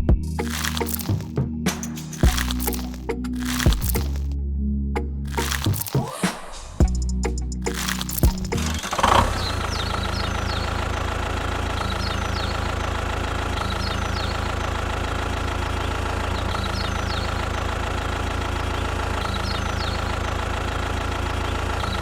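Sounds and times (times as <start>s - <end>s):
engine idling: 7.1s - 22.0s.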